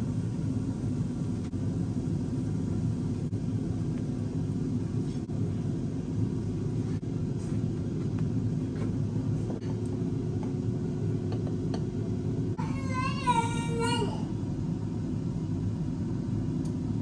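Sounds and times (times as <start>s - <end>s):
steady low rumble: 0.0s - 12.6s
baby's high-pitched voice: 12.6s - 14.3s.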